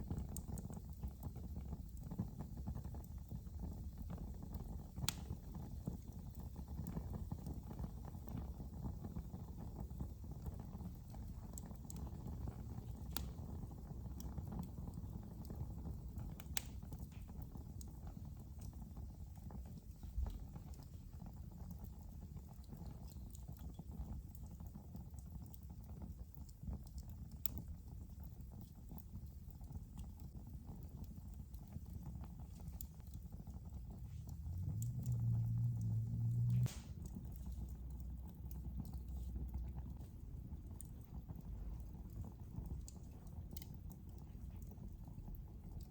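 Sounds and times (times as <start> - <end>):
fire crackling and popping: 0.0 - 45.9
wood fire rumbling: 0.0 - 45.9.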